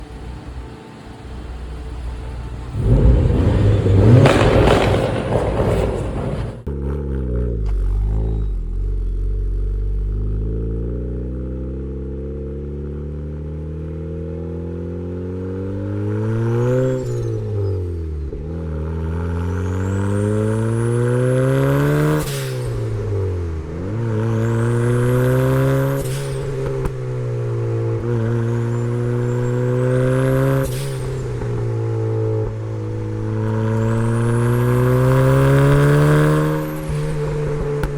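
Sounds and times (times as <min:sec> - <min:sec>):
car engine accelerating hard: 0:00.0 - 0:37.9
loud rushing noise: 0:02.4 - 0:06.7.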